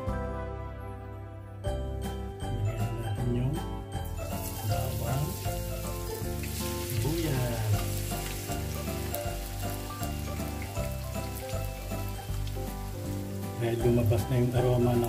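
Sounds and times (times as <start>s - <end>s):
background music: 0.0s - 15.0s
garlic and onion sizzling in oil: 4.0s - 15.0s.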